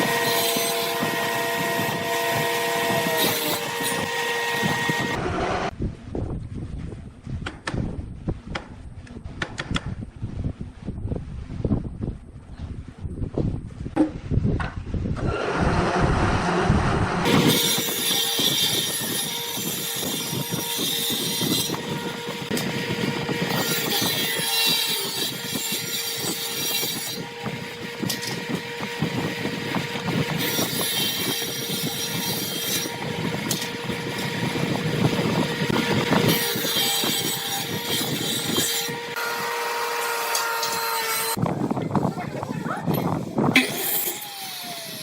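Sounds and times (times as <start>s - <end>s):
woodworking power tool humming: 0.0s - 5.7s, 15.3s - 41.4s, 43.3s - 45.0s.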